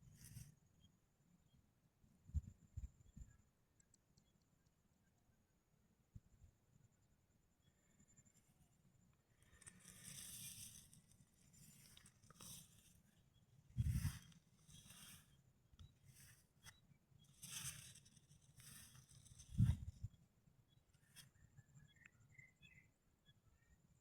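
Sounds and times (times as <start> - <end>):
faint rustling and crunching: 9.1 - 22.0.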